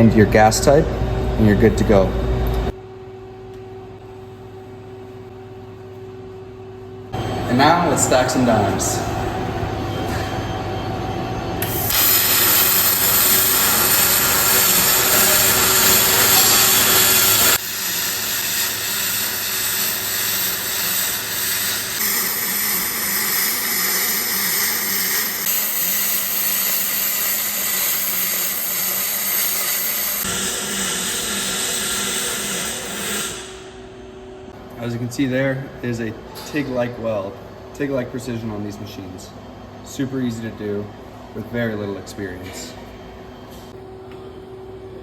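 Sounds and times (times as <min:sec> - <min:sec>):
welding arc crackling hiss: 0:11.6 - 0:33.8.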